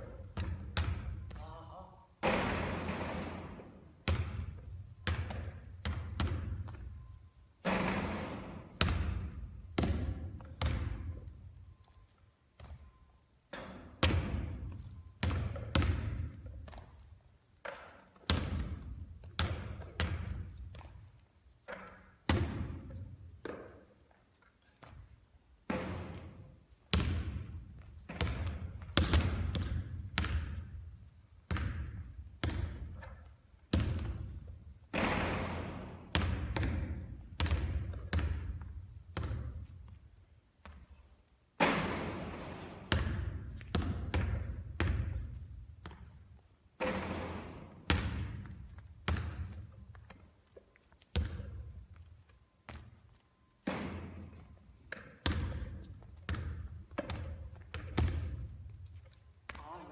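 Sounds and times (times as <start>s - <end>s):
basketball bouncing on a court: 0.0s - 11.9s, 12.6s - 23.9s, 24.8s - 40.0s, 40.6s - 50.3s, 51.0s - 59.9s.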